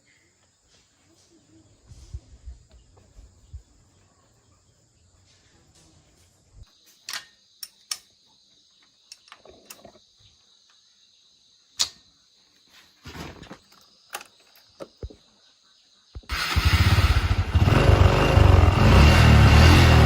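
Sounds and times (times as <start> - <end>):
insects chirring: 6.2 - 17.9.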